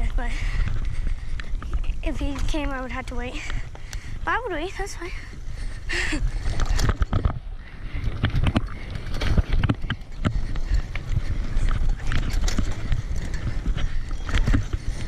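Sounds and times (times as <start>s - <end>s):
tyres rumbling on dirt trail: 0.0s - 15.0s
bicycle parts rattling: 5.1s - 15.0s.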